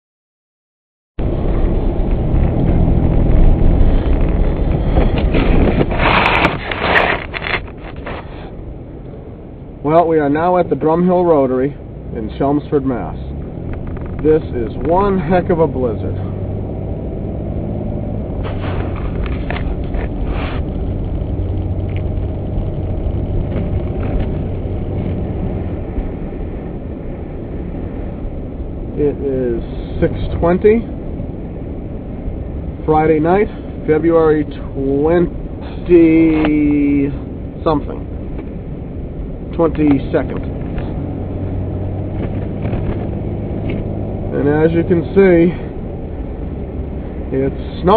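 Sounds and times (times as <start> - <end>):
car engine and tyres rumbling: 1.2 - 47.9
short knocks or scrapes: 3.9 - 8.5, 18.4 - 20.9.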